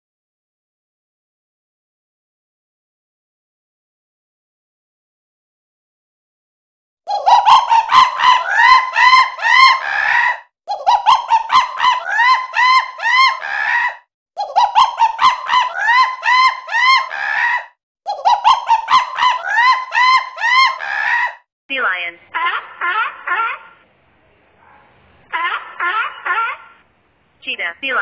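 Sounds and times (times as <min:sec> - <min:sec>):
monkey calls: 0:07.1 - 0:13.9.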